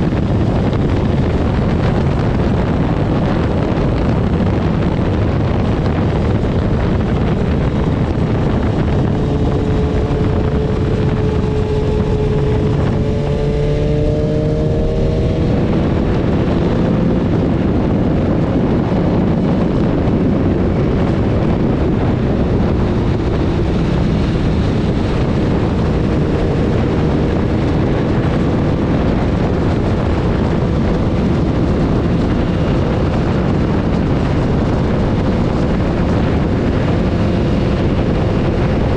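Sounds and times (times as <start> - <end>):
motorcycle engine: 0.0 - 38.9
wind rushing on microphone: 0.0 - 38.9.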